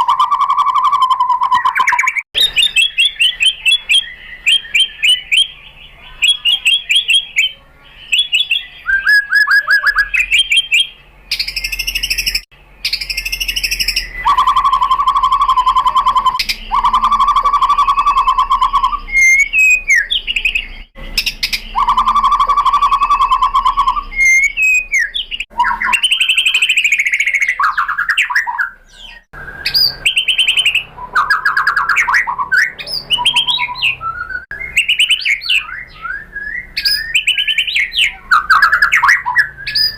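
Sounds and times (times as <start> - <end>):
bird singing whistled song: 0.0 - 39.9
fast bird trills: 0.0 - 39.9.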